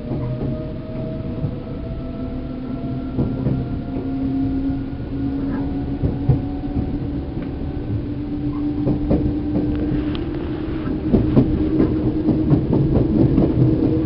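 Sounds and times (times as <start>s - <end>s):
rail joint clicks: 0.0s - 14.0s
train motor whine: 0.0s - 14.0s
train wheels rumbling: 0.0s - 14.0s.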